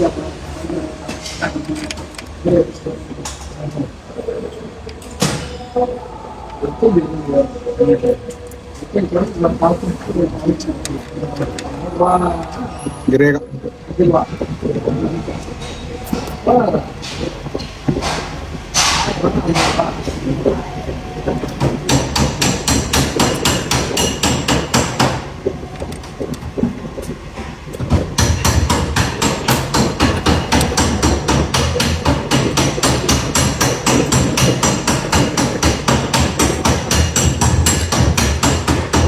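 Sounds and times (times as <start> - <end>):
rapid metallic knocking: 21.6 - 25.3, 27.8 - 39.0.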